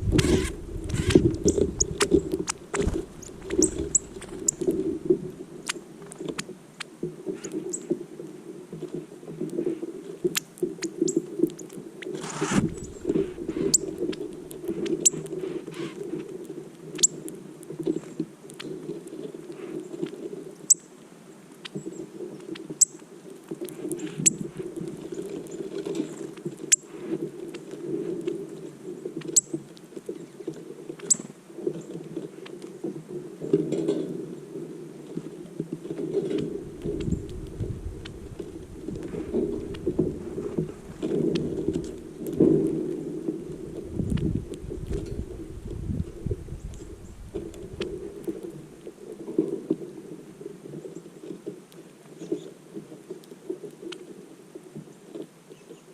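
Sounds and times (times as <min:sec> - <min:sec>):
low rushing noise: 0:00.0 - 0:04.7
songbirds chip calls: 0:00.0 - 0:04.8, 0:10.4 - 0:16.0.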